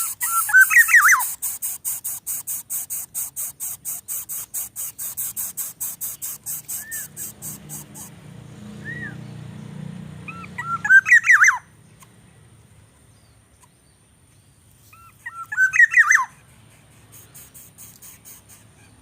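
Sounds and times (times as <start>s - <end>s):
rapid high ticking: 0.0s - 8.4s, 16.3s - 19.0s
bird chirping: 0.0s - 19.0s.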